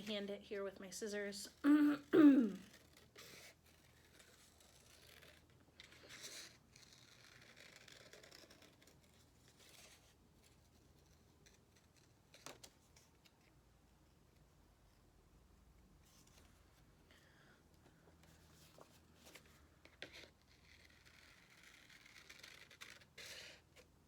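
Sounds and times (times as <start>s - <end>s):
paper scraping: 2.6s - 13.4s, 18.2s - 23.9s.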